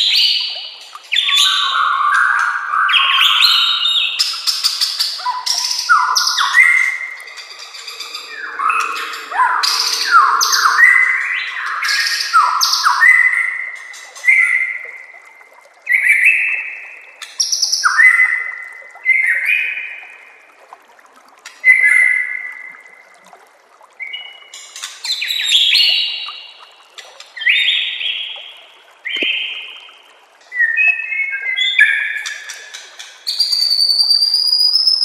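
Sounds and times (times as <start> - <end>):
bird singing whistled phrases: 5.2 - 13.5, 33.3 - 35.0.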